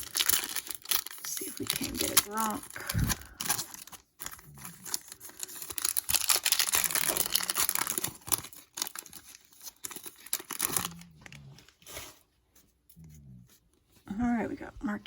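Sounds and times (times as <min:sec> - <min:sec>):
foil wrapper tearing and crinkling: 0:00.0 - 0:12.2.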